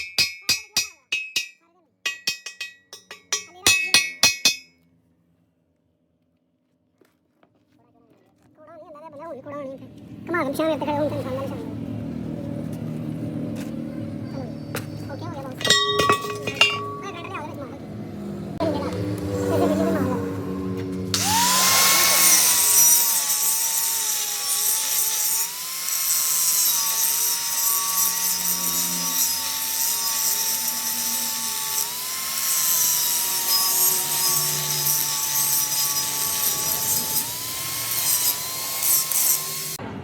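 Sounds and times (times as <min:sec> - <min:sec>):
power tool motor whine: 0:21.0 - 0:39.8.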